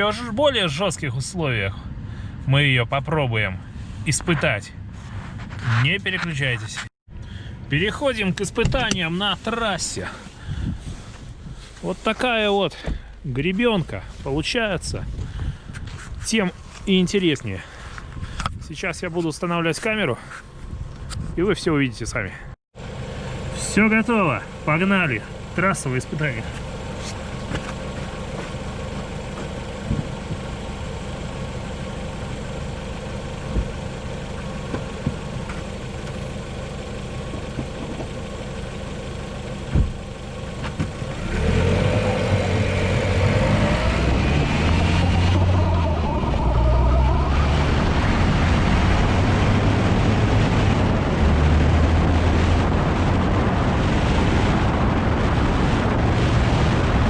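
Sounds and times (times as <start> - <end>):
wind noise: 10.4 - 11.7, 15.0 - 16.7, 47.0 - 57.0
car engine accelerating: 22.8 - 54.0
tyre and road noise: 22.8 - 57.0
suspension knocks: 26.4 - 32.0, 33.3 - 38.4, 39.1 - 41.2.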